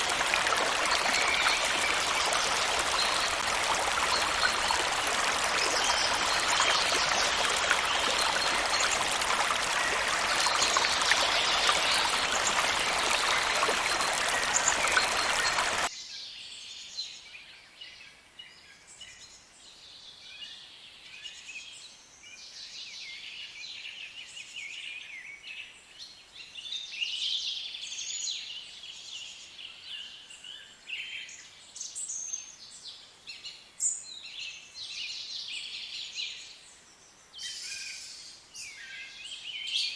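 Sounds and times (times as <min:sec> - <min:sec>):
birds chirping: 0:00.0 - 0:15.9
stream flowing: 0:00.0 - 0:15.9.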